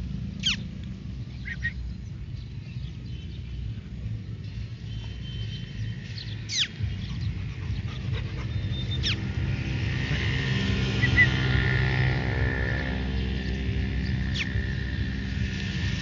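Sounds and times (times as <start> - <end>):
steady low rumble: 0.0 - 16.0
puppies yelping: 6.5 - 9.5, 10.9 - 11.5.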